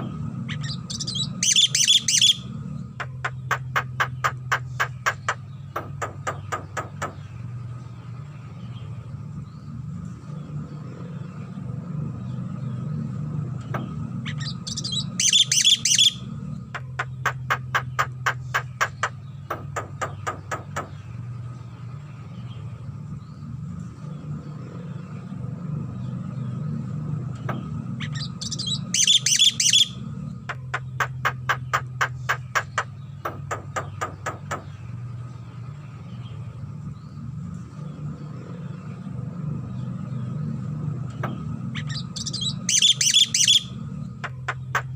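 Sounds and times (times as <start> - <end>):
steady low hum: 0.0 - 42.7.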